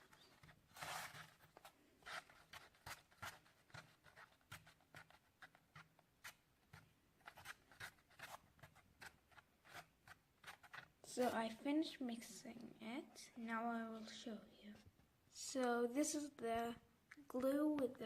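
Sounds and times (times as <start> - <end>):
spoon stirring glue in bowl: 0.0 - 11.7.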